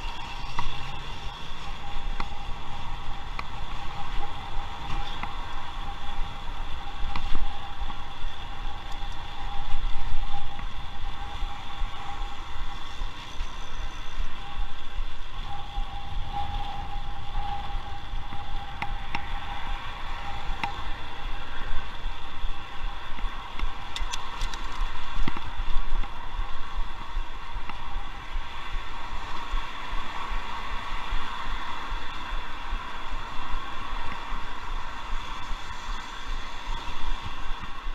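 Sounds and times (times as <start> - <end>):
tyres on road: 0.0 - 37.9
wind rumbling on microphone: 0.0 - 37.9
bike clicks and rattles: 23.1 - 26.2.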